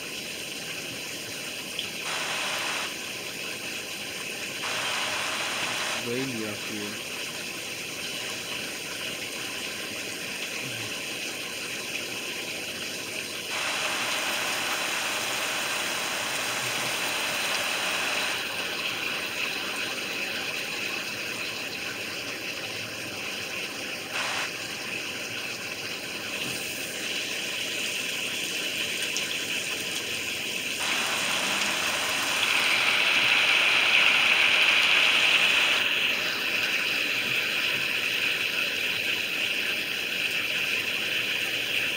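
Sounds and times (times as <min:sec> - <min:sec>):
heavy rain pouring: 0:02.0 - 0:03.1, 0:04.6 - 0:06.8, 0:13.5 - 0:20.4, 0:24.2 - 0:24.7, 0:30.8 - 0:38.1.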